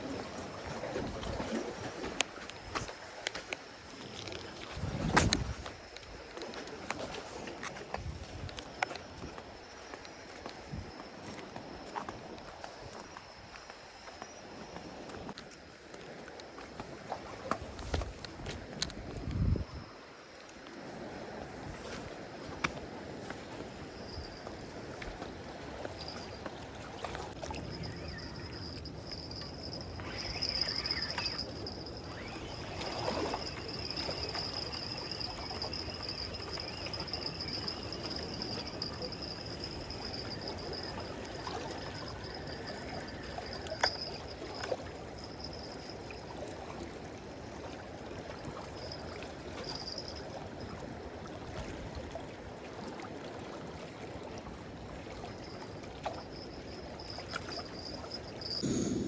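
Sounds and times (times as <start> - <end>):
sea water lapping against breakwater: 0.0 - 9.3
thin high-pitched tone: 27.4 - 44.6.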